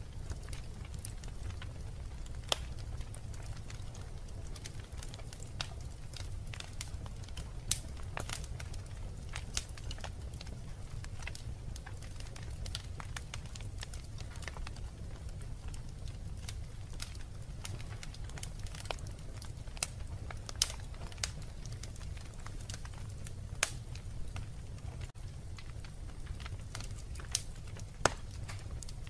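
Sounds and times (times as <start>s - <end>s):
fire crackling and popping: 0.0s - 29.0s
fire flames rumbling: 0.0s - 29.0s.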